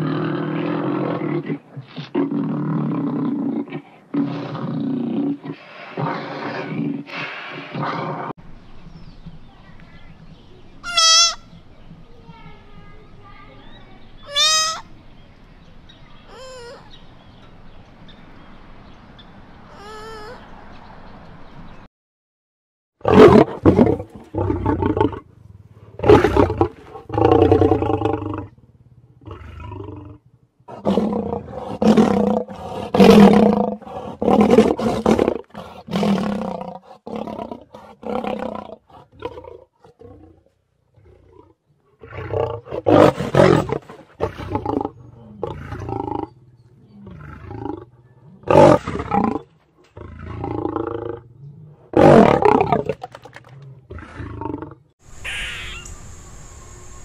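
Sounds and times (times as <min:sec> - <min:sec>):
young lions roaring: 0:26.0 - 0:40.4.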